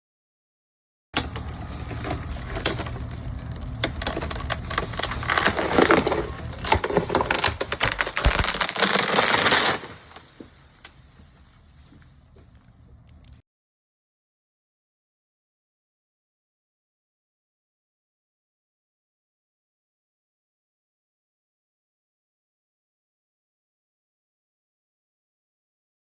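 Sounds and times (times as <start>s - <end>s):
wood cracking and splintering: 1.2s - 11.0s
low steady hum: 1.2s - 13.4s.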